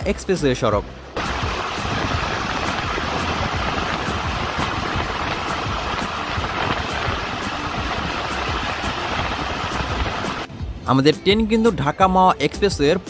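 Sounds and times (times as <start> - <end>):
wind rushing: 1.2 - 10.5.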